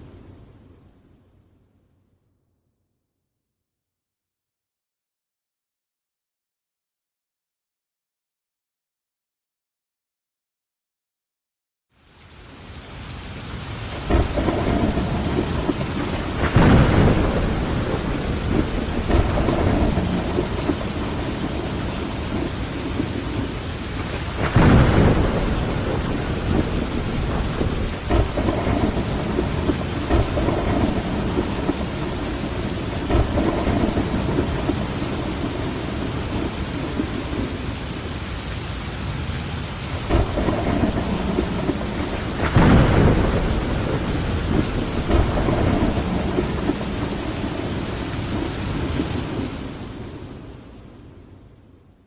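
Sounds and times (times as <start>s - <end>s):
heavy rain on a window: 0.0s - 1.7s, 11.9s - 52.0s
thunder rumbling: 13.2s - 51.5s.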